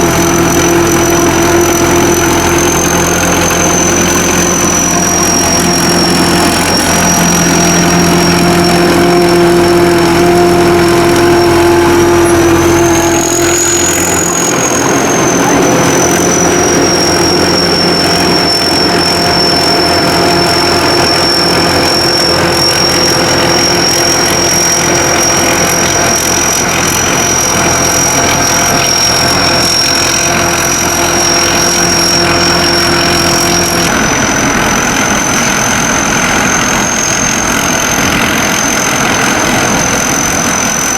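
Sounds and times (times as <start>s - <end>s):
combine harvester running: 0.0s - 40.9s
high constant whine: 0.0s - 40.9s.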